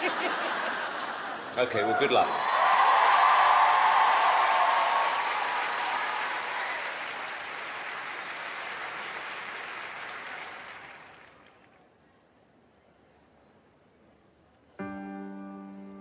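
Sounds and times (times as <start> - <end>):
audience applauding: 1.6 - 11.8.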